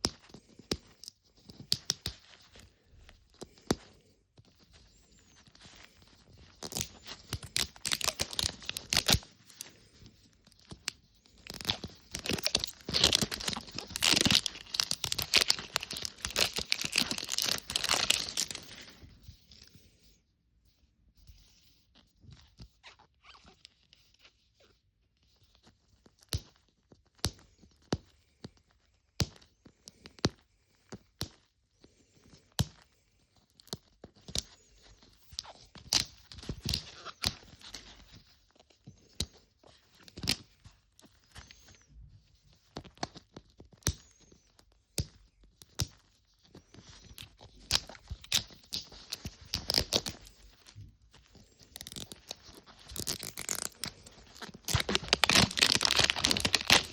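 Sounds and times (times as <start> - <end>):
plastic wrappers tearing and crinkling: 6.4 - 9.7, 10.6 - 18.9, 46.8 - 56.9
small plastic pieces clicking: 51.8 - 56.9.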